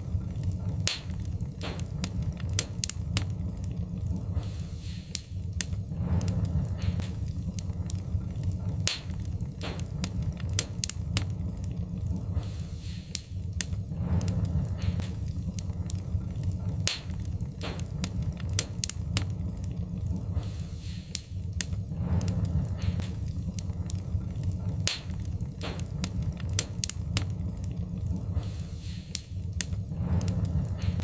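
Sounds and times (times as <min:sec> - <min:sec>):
low rumble: 0:00.0 - 0:31.0
wood fire crackling: 0:00.0 - 0:31.0.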